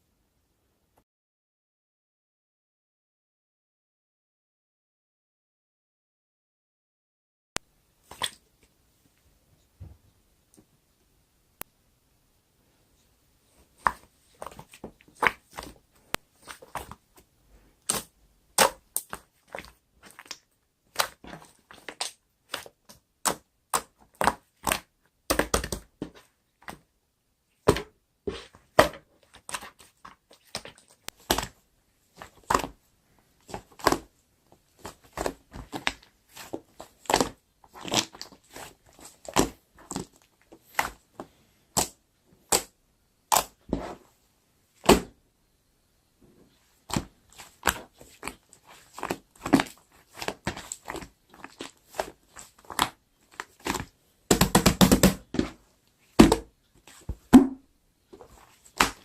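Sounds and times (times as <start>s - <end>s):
slime popping and crackling: 17.8s - 25.9s, 34.8s - 41.0s, 46.9s - 55.5s, 58.3s - 59.0s.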